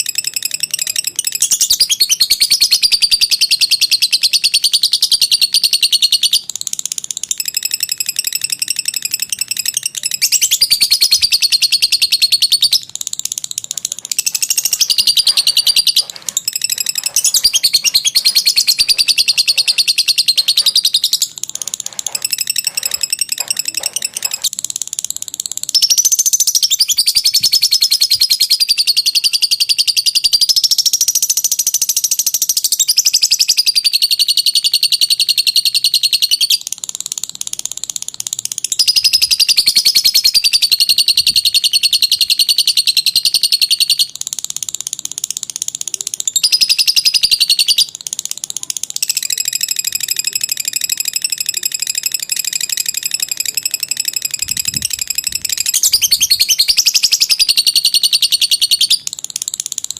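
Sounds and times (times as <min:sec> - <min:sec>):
lovebird chattering trill: 0:00.0 - 0:59.9.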